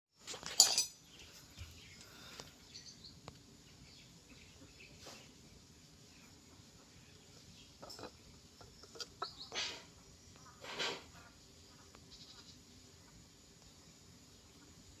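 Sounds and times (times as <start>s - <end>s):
bird chirps: 6.1s - 10.6s.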